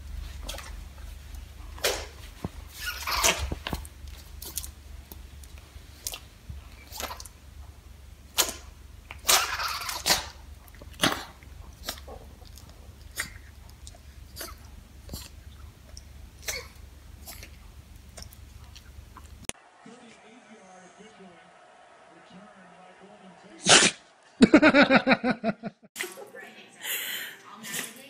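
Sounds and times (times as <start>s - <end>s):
dogs sneezing: 1.8s - 3.7s, 6.8s - 7.3s, 8.3s - 12.2s, 14.3s - 15.4s, 16.4s - 17.6s, 23.6s - 24.0s.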